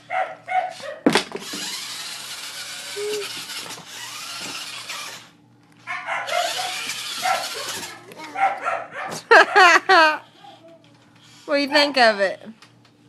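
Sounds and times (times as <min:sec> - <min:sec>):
toy truck motor whirring: 0:00.7 - 0:05.4, 0:06.2 - 0:08.3, 0:11.2 - 0:11.7.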